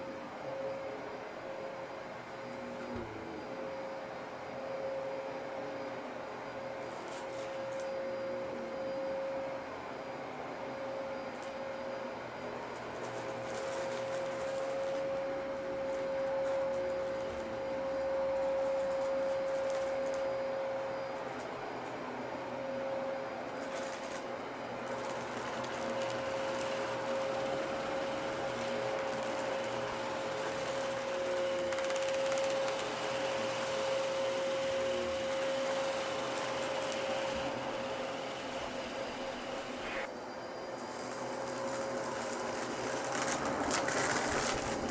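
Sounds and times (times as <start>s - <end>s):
vacuum cleaner whining: 0.0s - 44.9s
debris crackling in vacuum: 40.9s - 44.9s.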